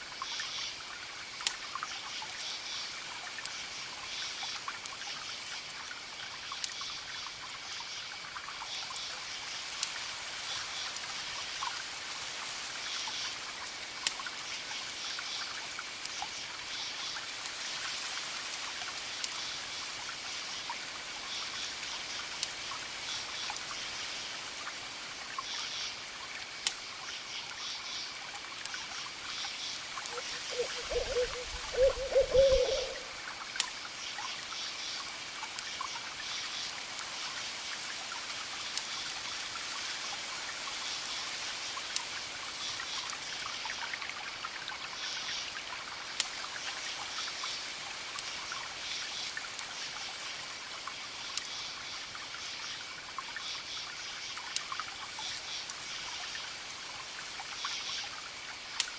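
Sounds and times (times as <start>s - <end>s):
campfire crackling: 26.0s - 40.0s, 46.1s - 46.5s
crickets chirping: 28.8s - 35.0s
low wavering call: 30.1s - 33.1s.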